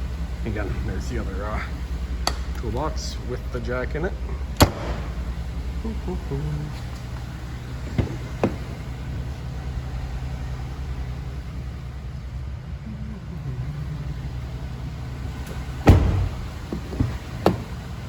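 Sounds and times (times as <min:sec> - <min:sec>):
truck engine idling: 0:00.0 - 0:18.0
sharp thump: 0:15.9 - 0:16.6.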